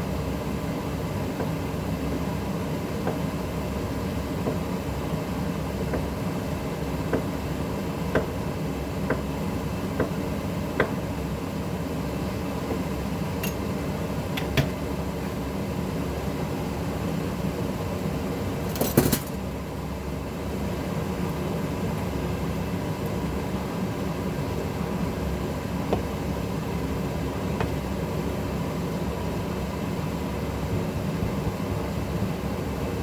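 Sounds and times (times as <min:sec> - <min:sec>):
dishes clattering: 0:18.7 - 0:19.4.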